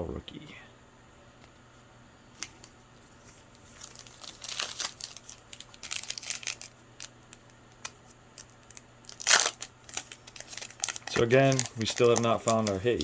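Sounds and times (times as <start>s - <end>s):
plastic wrapper crinkling and tearing: 3.6s - 13.0s.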